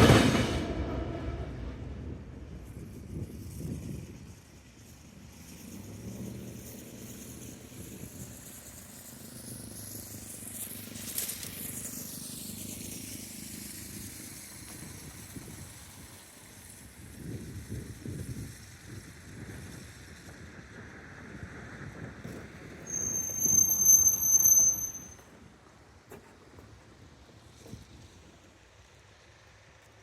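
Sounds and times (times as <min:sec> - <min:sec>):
freight train rumbling: 0:00.0 - 0:30.0.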